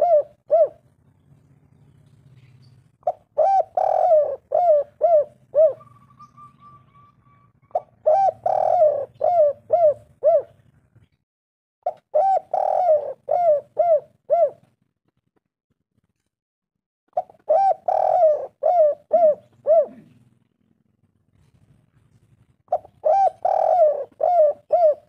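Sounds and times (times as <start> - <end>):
dove cooing: 0.0 - 1.0, 2.4 - 10.8, 11.9 - 14.7, 17.1 - 20.4, 22.7 - 25.0.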